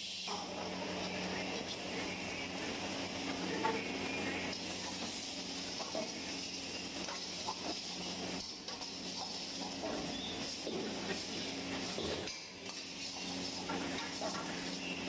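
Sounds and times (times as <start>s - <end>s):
chicken sizzling in a wok: 0.0s - 15.0s
ladle scraping and clinking wok: 4.5s - 15.0s.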